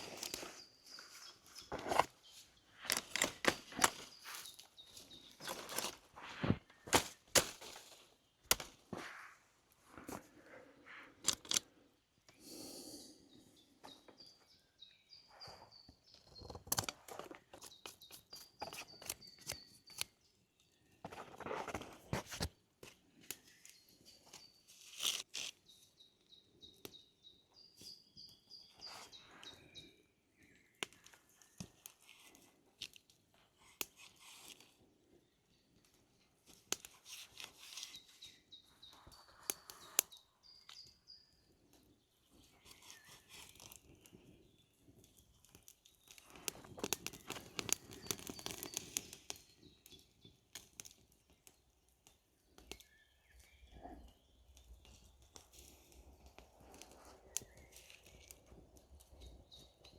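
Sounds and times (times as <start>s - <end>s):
small clicks and crackles: 0.0s - 9.2s, 9.9s - 12.4s, 16.1s - 25.8s, 27.8s - 41.0s, 41.6s - 59.9s
rustling or crunching: 0.0s - 10.5s.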